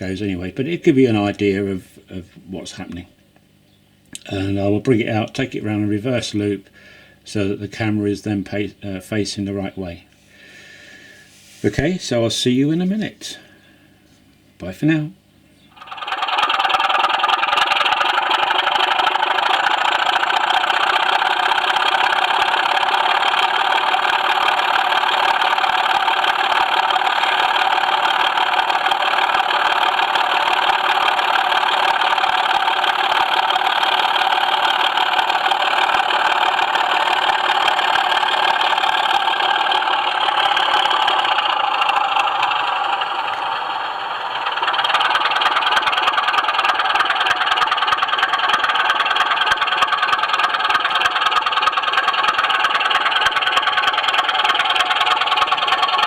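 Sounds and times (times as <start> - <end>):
model train wheels rumbling: 15.8 - 56.0.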